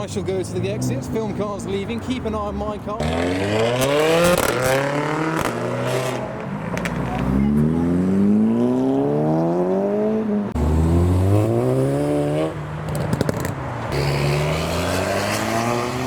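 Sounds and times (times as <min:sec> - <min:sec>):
car engine accelerating: 0:03.0 - 0:16.0
exhaust pops: 0:03.8 - 0:07.4, 0:12.8 - 0:13.6.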